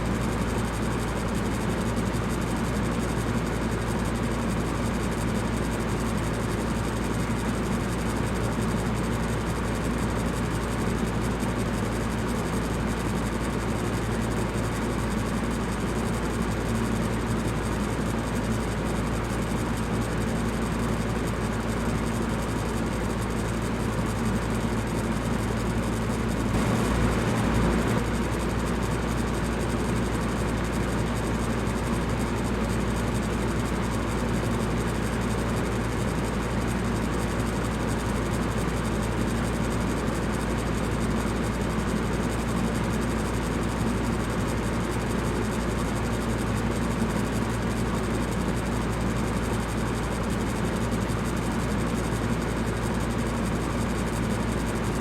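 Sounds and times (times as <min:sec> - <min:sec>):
electric fan whooshing: 0:26.6 - 0:28.4.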